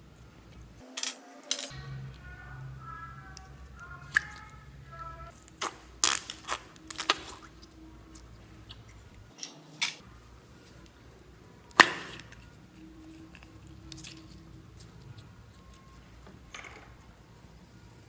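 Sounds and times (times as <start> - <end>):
slime being squished: 5.3 - 9.0.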